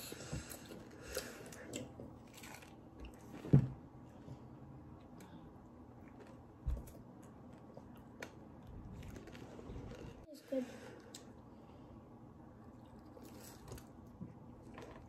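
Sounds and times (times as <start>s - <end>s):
children chewing: 0.0s - 3.2s, 12.5s - 15.0s.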